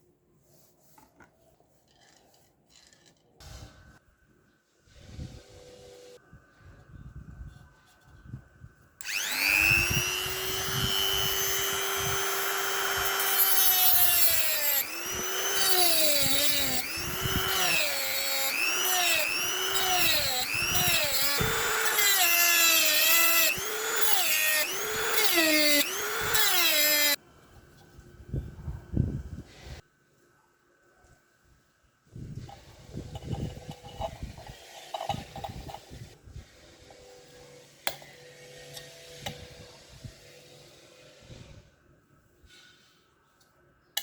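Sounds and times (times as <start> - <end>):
handheld power tool spinning: 9.0 - 27.2, 32.4 - 36.2.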